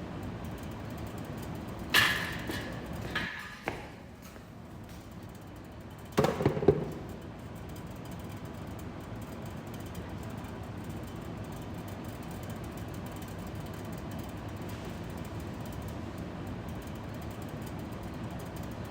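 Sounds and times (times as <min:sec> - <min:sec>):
heavier knocks: 0:06.2 - 0:07.2.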